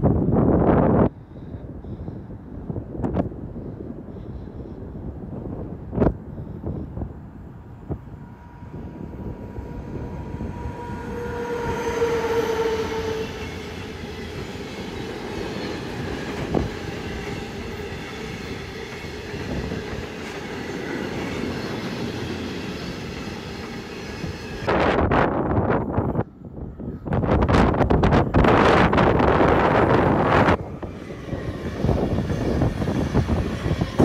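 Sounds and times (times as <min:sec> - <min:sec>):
train wheels rumbling on rail: 0:00.2 - 0:34.0
locomotive humming tone: 0:07.3 - 0:34.0.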